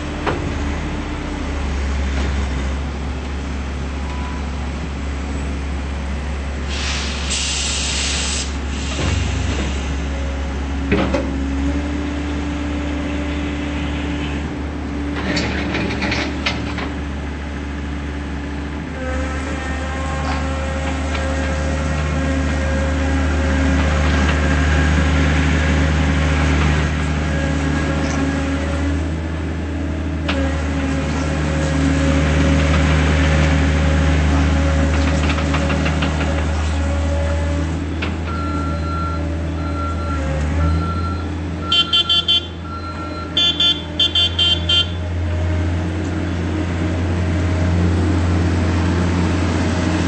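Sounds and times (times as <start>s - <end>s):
diesel engine running: 0.0s - 50.0s
pulsing horn toots: 41.6s - 45.1s.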